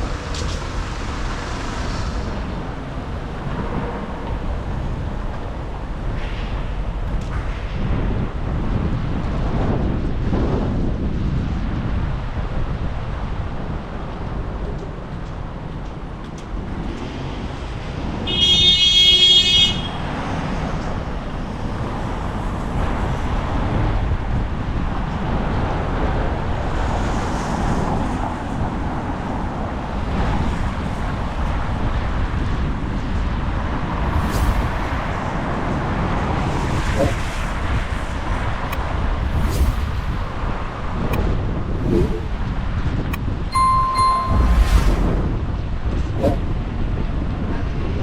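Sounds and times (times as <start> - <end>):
street traffic passing: 0.0 - 9.8, 12.2 - 48.0
wind buffeting microphone: 0.0 - 18.3, 20.1 - 48.0
loud high-pitched tone: 43.5 - 45.3.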